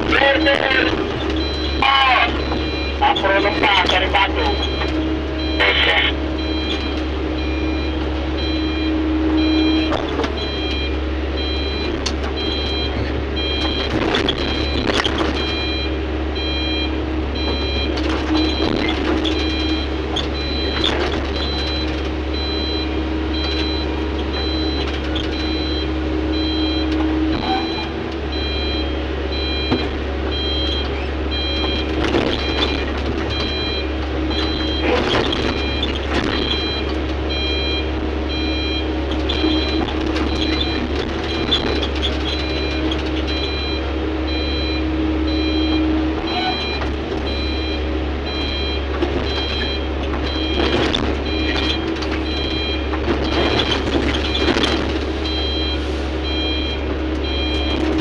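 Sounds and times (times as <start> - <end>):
knocks and clanks: 0.0 - 8.5, 9.3 - 15.8, 17.4 - 22.8, 29.5 - 37.8, 39.1 - 43.8, 45.7 - 55.6
backup alarm beeping: 0.0 - 58.0
diesel engine running: 0.0 - 58.0.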